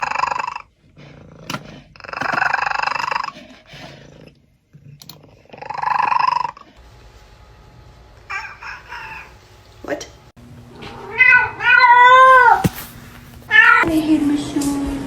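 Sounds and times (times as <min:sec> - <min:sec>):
cat making drawn-out calls: 0:10.8 - 0:12.8, 0:13.5 - 0:13.8.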